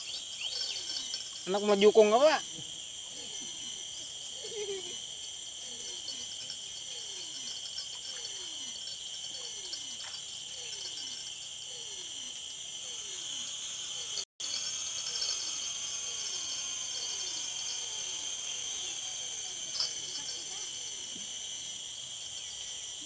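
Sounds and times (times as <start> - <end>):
crickets shrilling: 0.0 - 23.0.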